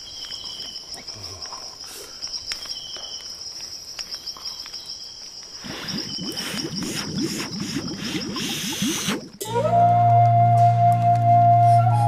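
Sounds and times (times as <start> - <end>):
high-pitched insect chirring: 0.0 - 9.4
lower insect call: 0.0 - 12.0.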